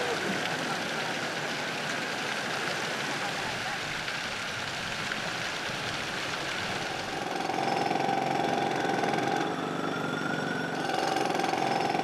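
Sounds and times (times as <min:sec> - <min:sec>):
steady mechanical whine: 0:07.1 - 0:12.0.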